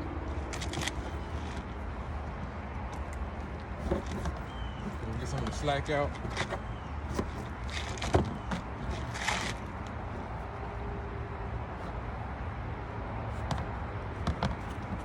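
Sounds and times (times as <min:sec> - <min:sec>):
strap webbing rasping pulls: 0:00.3 - 0:10.4.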